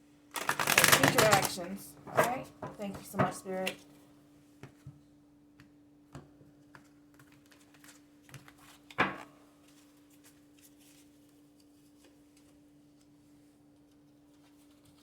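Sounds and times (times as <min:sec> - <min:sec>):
cards clicking and tapping: 0:00.4 - 0:03.8, 0:05.6 - 0:09.3.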